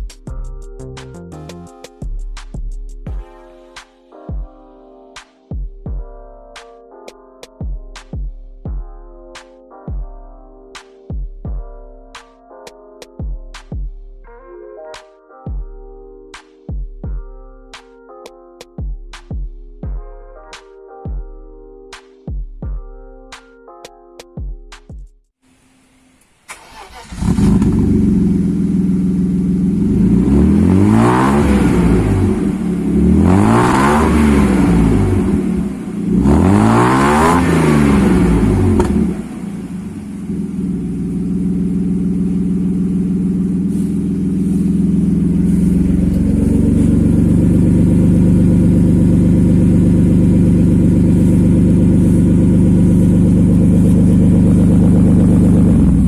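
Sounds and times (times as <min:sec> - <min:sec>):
car engine idling: 0:26.5 - 0:31.0, 0:37.7 - 0:56.0
car engine revving: 0:26.5 - 0:56.0.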